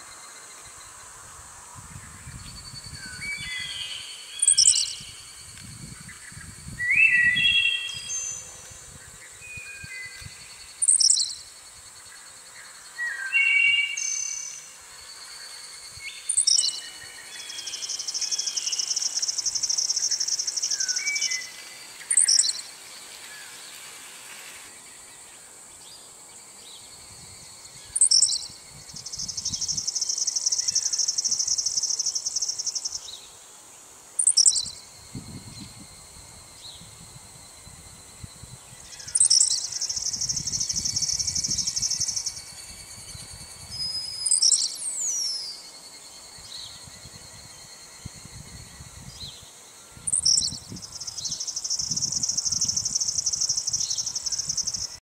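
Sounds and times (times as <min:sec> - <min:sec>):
songbird singing buzzy trill: 0:01.8 - 0:33.5, 0:34.1 - 0:55.0.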